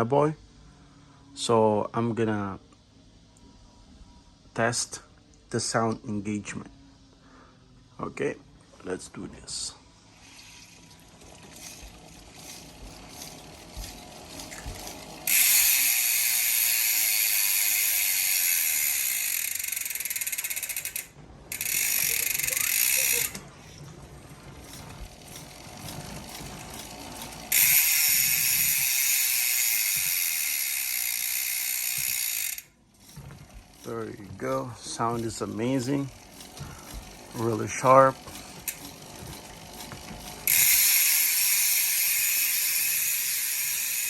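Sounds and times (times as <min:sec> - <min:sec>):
bicycle freehub ratcheting buzz: 0:10.0 - 0:44.0.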